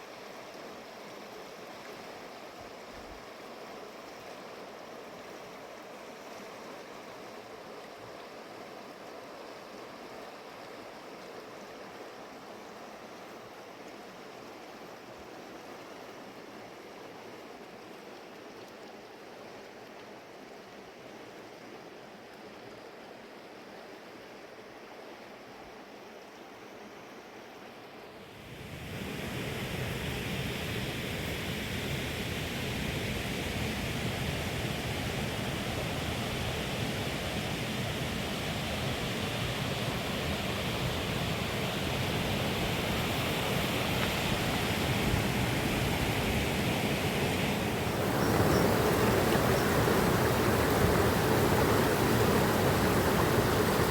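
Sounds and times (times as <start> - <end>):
river water rushing: 34.0 - 53.9.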